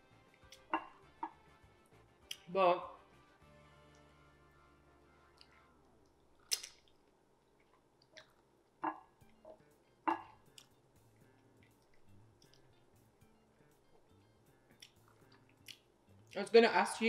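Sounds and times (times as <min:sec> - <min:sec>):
soft chewing and mouth sounds: 0:00.3 - 0:01.4, 0:05.1 - 0:16.5.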